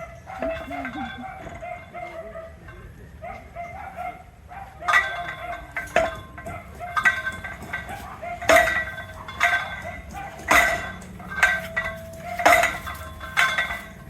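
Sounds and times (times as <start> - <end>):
hammer striking steel pipe: 4.8 - 14.0.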